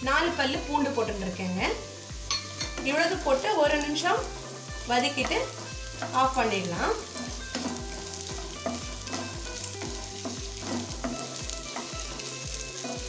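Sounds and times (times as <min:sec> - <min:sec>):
food sizzling in hot oil: 0:00.0 - 0:13.0
wooden spatula stirring: 0:03.8 - 0:13.0.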